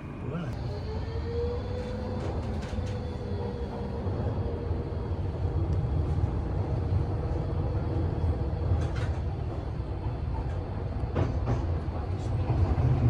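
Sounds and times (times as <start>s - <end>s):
train wheels rumbling on track: 0.6s - 13.0s.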